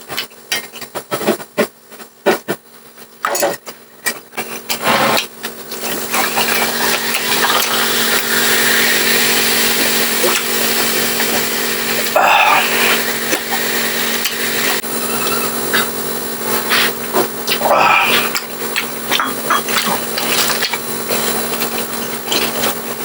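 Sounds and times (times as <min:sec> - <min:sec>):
loud steady hiss: 0:04.8 - 0:23.0.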